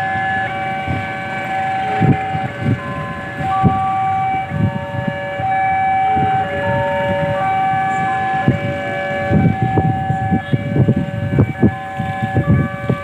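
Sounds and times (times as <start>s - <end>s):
level crossing two-tone alarm: 0.0s - 13.0s.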